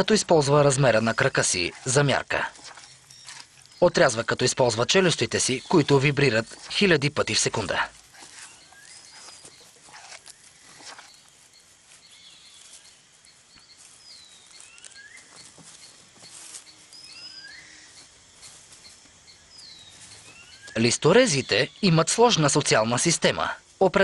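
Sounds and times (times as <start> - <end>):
soft crackles: 0.0 - 20.9
birds calling: 0.0 - 23.6.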